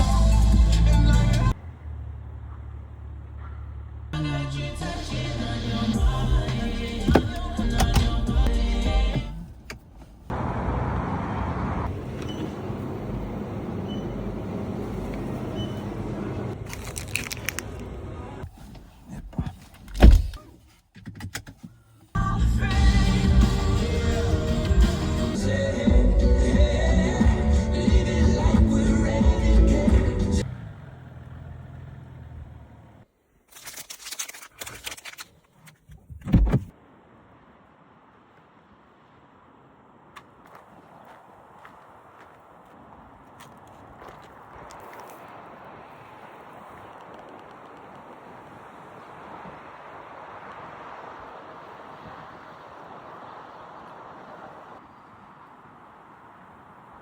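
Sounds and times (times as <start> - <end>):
car engine idling: 0.0 - 16.6, 22.2 - 33.1
car engine and road noise: 0.0 - 57.0
clicks and rattles: 33.5 - 36.3.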